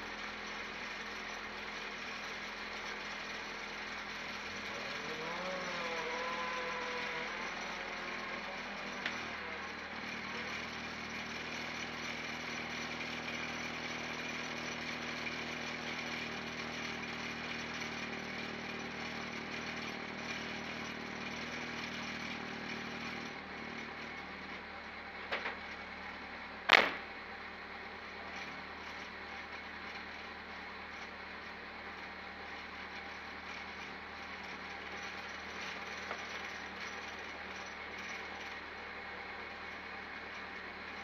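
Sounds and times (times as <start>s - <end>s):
car engine idling: 0.0s - 41.0s
sharp loud knock: 26.7s - 27.0s
small clicks: 26.7s - 27.0s.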